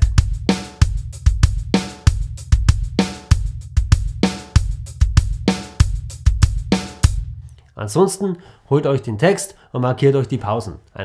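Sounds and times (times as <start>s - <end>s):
drum kit samba groove: 0.0s - 7.4s.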